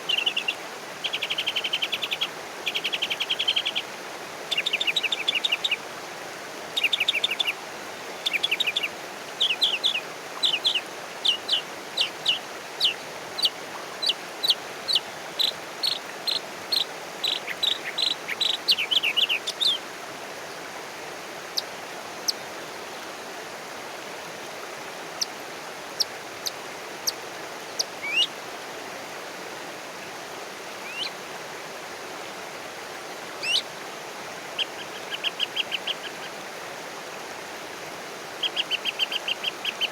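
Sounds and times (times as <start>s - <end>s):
steady background hiss: 0.0s - 39.9s
bird chirping: 8.2s - 19.8s.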